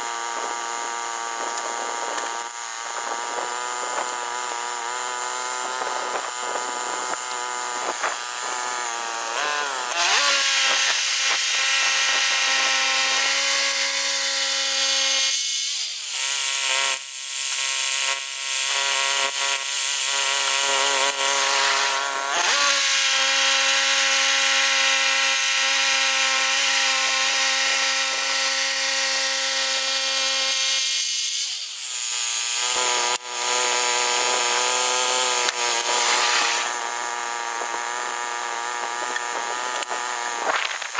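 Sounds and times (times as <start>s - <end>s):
band blade cutting through log: 0.0s - 40.9s
bandsaw mill engine running: 18.6s - 30.7s, 31.8s - 40.9s.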